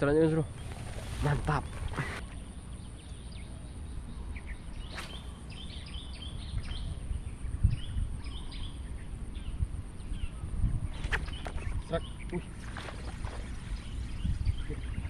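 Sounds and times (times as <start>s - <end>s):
birds chirping: 0.0s - 15.0s
wind on microphone: 4.0s - 15.0s.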